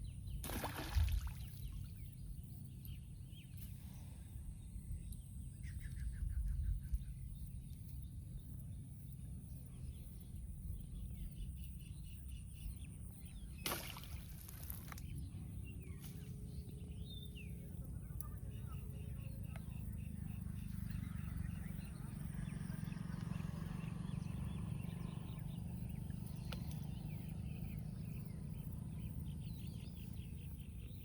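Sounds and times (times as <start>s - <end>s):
small birds chirping: 0.0s - 31.0s
rustling or splashing: 0.4s - 1.6s, 13.6s - 15.1s.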